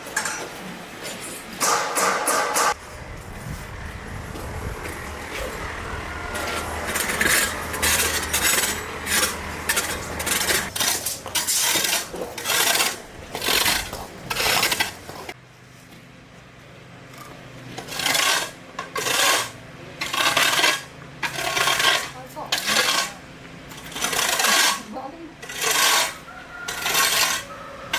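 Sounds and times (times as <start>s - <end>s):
stones and gravel scraping: 4.4s - 15.4s, 17.6s - 27.7s.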